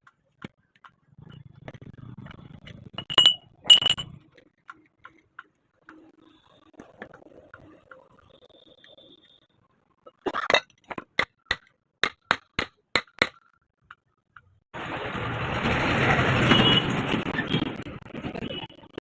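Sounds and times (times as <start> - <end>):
sharp metallic clinks: 3.0 - 4.1.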